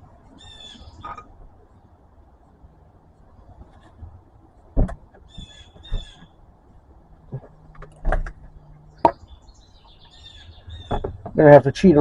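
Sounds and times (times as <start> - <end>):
sharp knocks: 9.0 - 9.3, 10.8 - 11.4.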